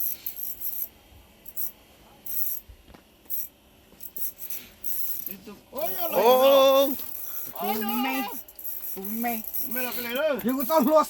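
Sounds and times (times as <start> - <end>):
fishing reel clicking: 6.9 - 10.9.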